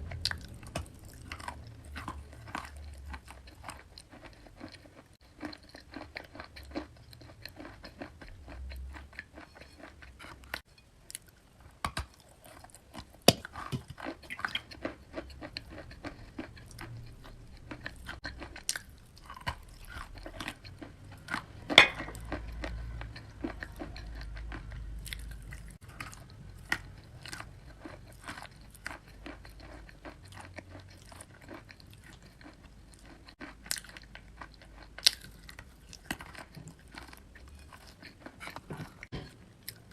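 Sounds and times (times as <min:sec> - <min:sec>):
person crunching and chewing: 0:00.0 - 0:39.9.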